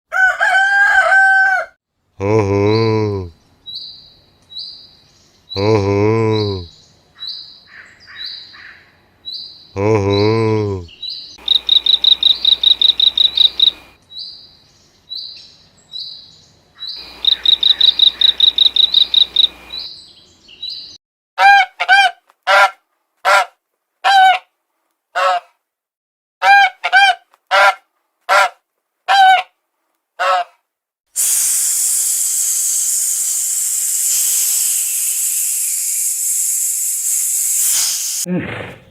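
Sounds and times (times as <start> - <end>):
high-pitched chirping trills: 11.4 - 13.9, 17.0 - 19.9.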